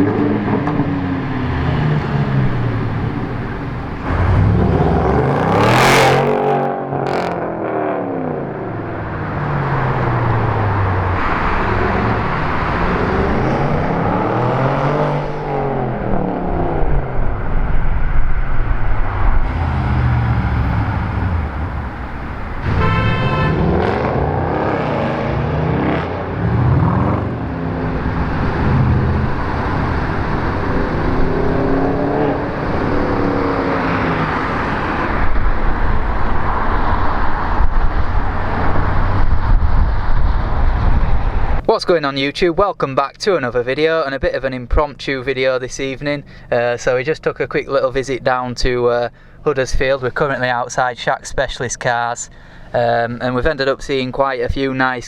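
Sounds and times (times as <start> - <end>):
cars driving past revving: 0.0 - 41.6
car horn: 20.6 - 24.0.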